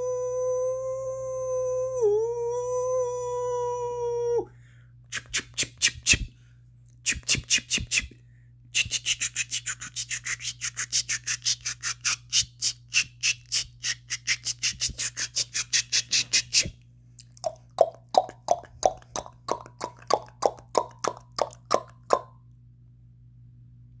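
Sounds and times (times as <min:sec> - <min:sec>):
man making mouth clicks: 0:05.1 - 0:06.3, 0:07.0 - 0:08.2, 0:08.8 - 0:22.3
hollow tongue pops: 0:16.6 - 0:22.4.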